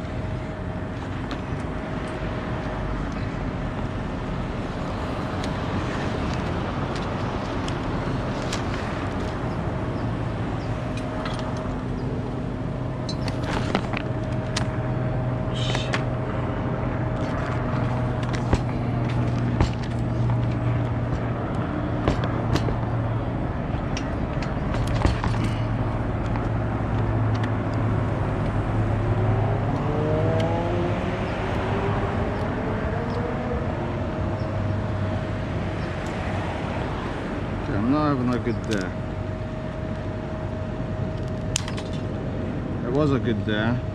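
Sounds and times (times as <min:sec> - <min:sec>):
truck engine humming: 0:00.0 - 0:30.1.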